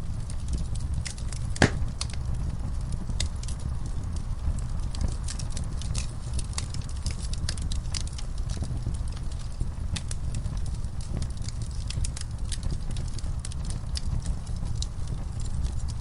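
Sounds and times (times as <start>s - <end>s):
fireplace fire crackling and popping: 0.0s - 16.0s.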